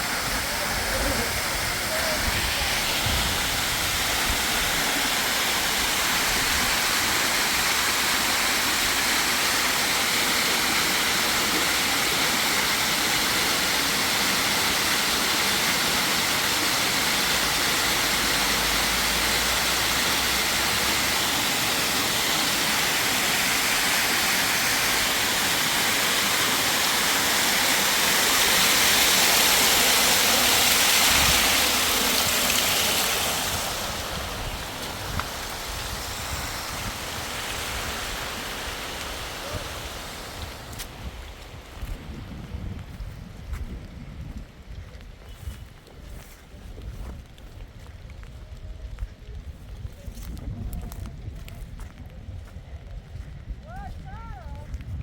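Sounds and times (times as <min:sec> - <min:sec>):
water rushing: 0:00.0 - 0:42.2.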